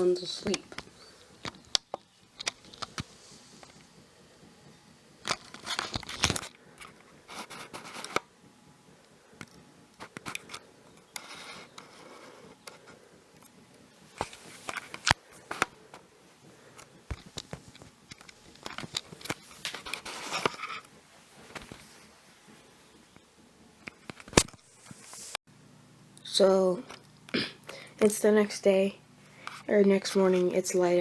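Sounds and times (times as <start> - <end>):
handling clicks and scrapes: 5.2 - 8.3, 14.1 - 16.0, 16.7 - 22.1.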